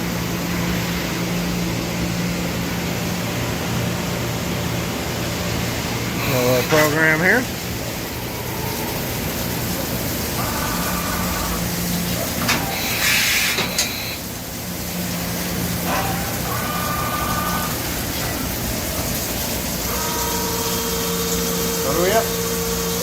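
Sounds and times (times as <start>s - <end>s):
machine hum: 0.0s - 23.0s
brief air hiss: 12.7s - 14.2s.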